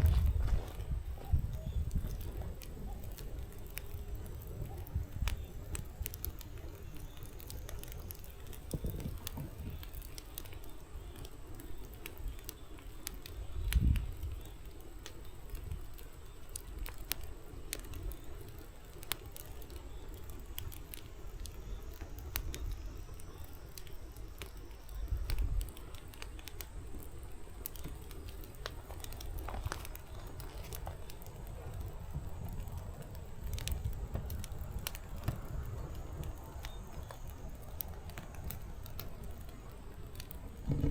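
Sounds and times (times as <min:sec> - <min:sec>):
firewood crackling and popping: 0:00.0 - 0:40.9
low puffs of fire: 0:00.0 - 0:40.9
low rush of flame: 0:00.0 - 0:40.9.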